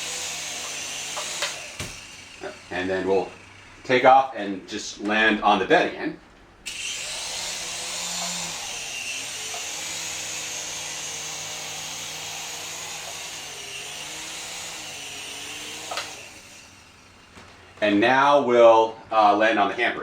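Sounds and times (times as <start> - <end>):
small electric motors whining: 0.0 - 4.0, 6.6 - 17.9
rotors whirring: 0.0 - 4.8, 6.4 - 18.0.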